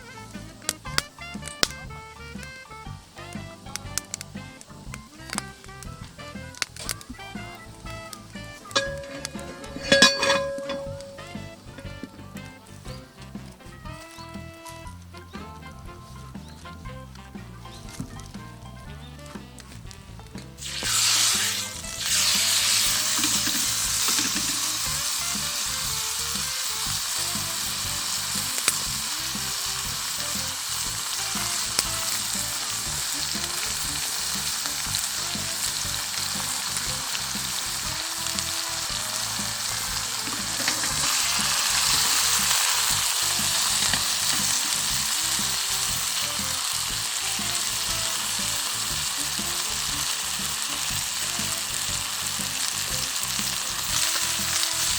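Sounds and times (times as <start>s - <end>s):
steak sizzling in a frying pan: 0.0s - 18.8s, 19.4s - 54.9s.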